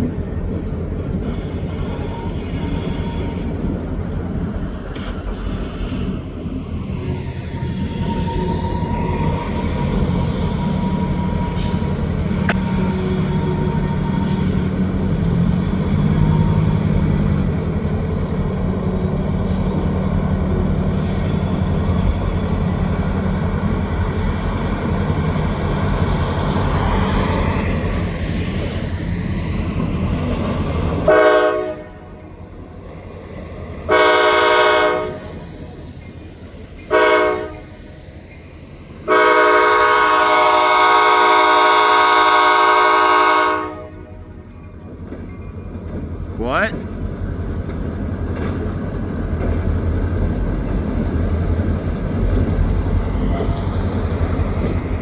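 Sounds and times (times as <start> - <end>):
freight train rumble: 0.0 - 55.0
locomotive air horn blasts: 31.1 - 32.2, 33.9 - 35.4, 36.9 - 37.7, 39.1 - 44.3.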